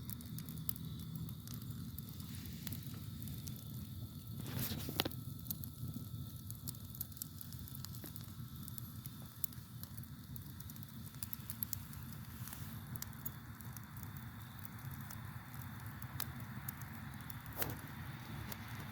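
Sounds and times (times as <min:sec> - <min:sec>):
campfire crackling and popping: 0:00.0 - 0:18.9
crickets trilling: 0:07.6 - 0:18.8.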